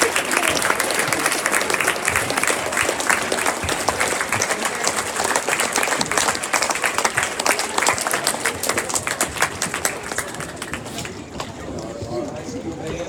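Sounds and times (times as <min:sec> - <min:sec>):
crowd applauding: 0:00.0 - 0:12.4.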